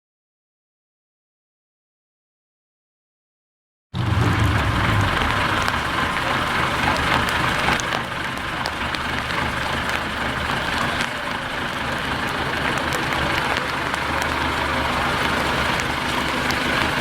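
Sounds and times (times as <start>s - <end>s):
truck engine running: 4.0s - 17.0s.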